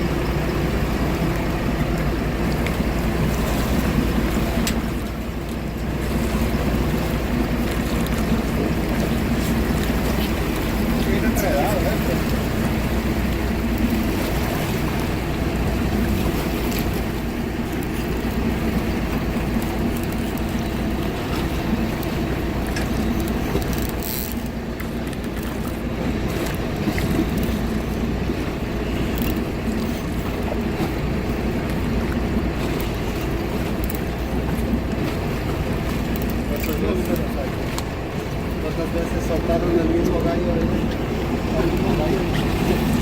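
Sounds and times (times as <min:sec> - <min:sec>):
boat engine running: 0:00.0 - 0:43.0
water noise: 0:00.0 - 0:43.0.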